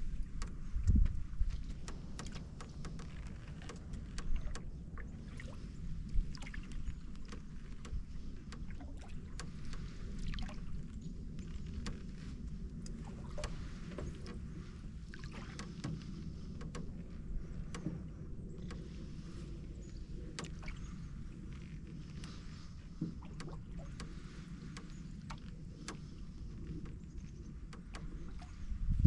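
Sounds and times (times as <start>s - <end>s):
water swishing and dripping: 0.0s - 29.0s
paddle knocking on canoe: 11.5s - 28.6s.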